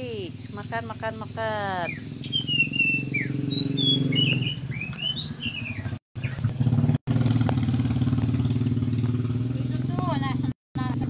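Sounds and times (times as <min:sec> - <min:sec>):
small birds chirping: 0:00.0 - 0:06.6.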